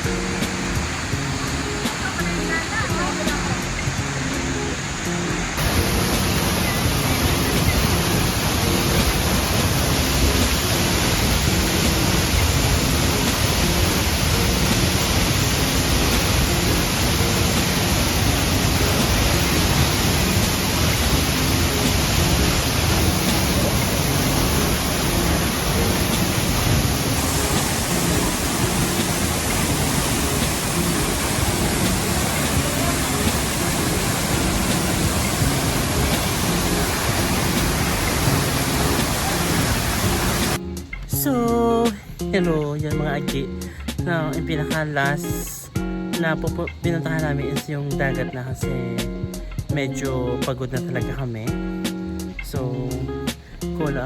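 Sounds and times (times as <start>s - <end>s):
waterfall pouring: 0.0s - 40.6s.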